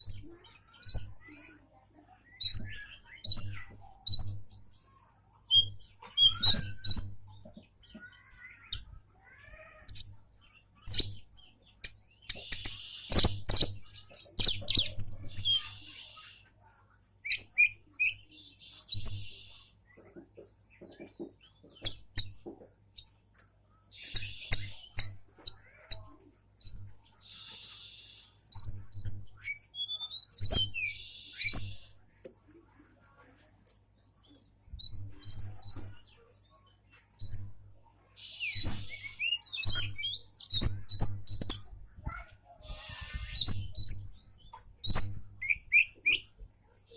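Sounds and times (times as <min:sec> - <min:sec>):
bird singing whistles and clicks: 0:00.0 - 0:01.4, 0:02.4 - 0:04.5, 0:05.5 - 0:07.4, 0:09.9 - 0:10.2, 0:10.8 - 0:16.3, 0:17.2 - 0:19.7, 0:21.7 - 0:22.4, 0:24.0 - 0:26.0, 0:26.6 - 0:32.0, 0:34.8 - 0:36.1, 0:37.2 - 0:37.6, 0:38.2 - 0:41.7, 0:42.7 - 0:46.4
harsh rasping bird calls: 0:05.5 - 0:16.4, 0:23.9 - 0:31.9, 0:38.2 - 0:41.7, 0:42.6 - 0:46.4.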